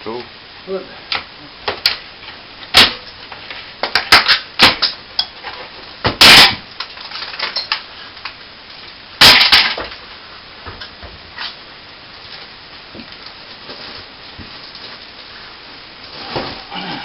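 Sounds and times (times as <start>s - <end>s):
ceiling vent knocking and clattering: 1.1s - 8.4s, 10.6s - 11.6s, 12.2s - 15.0s.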